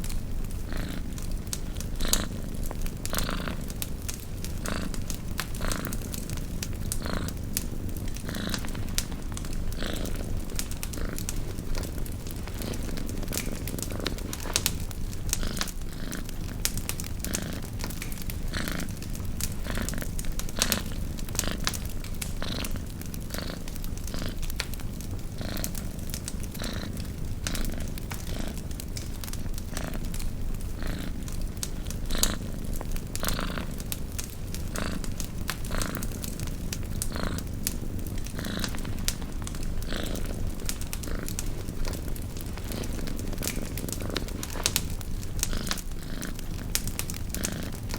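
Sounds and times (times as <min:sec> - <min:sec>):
campfire crackling: 0:00.0 - 0:47.9
cat purring: 0:00.0 - 0:47.9.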